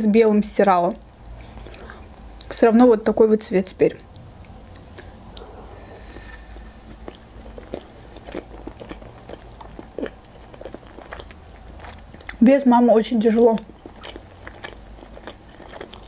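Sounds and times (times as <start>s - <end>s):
person chewing food: 1.2s - 2.5s, 3.9s - 12.4s, 13.5s - 16.0s.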